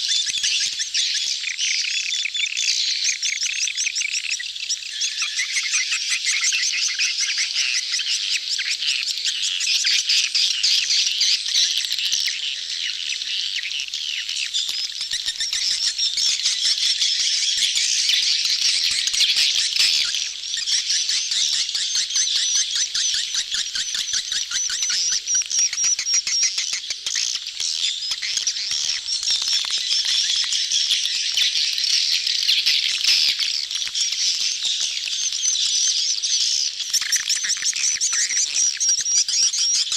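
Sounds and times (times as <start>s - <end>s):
swiftlets twittering and clicking: 14.4s - 39.9s.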